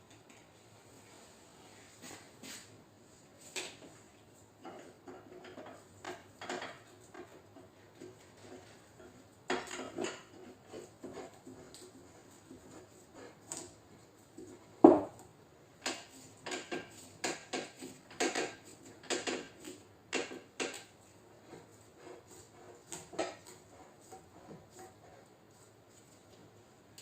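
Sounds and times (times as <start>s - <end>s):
loud knock: 14.8s - 15.1s.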